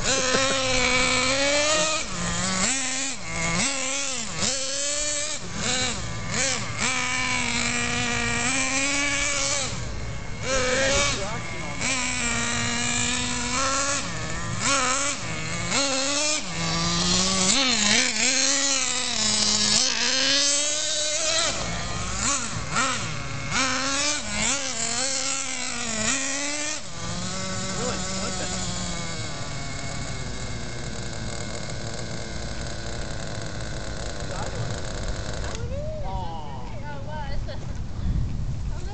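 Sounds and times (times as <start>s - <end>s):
rc car engine revving: 0.0s - 37.6s.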